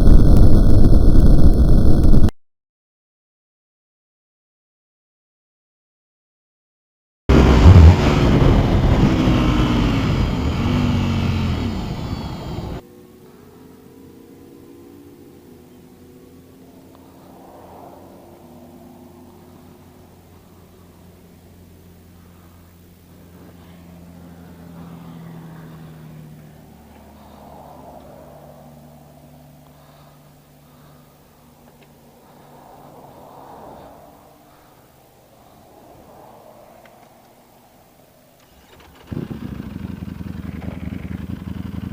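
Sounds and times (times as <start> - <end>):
steady hum: 0.0 - 2.3
motorcycle engines revving: 7.3 - 12.8, 13.4 - 41.9.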